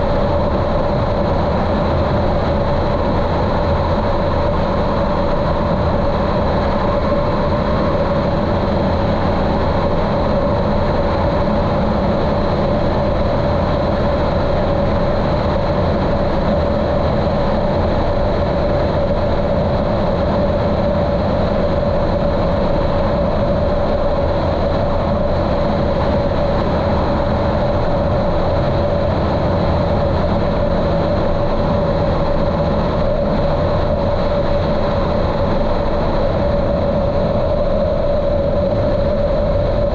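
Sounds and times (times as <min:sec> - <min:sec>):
muffled aircraft engine running: 0:00.0 - 0:39.9.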